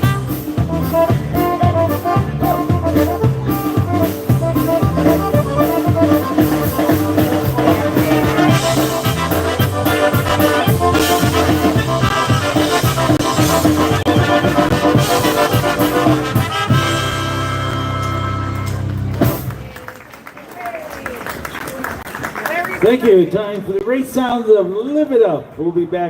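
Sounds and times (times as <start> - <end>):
polka band playing: 0.0 - 19.8.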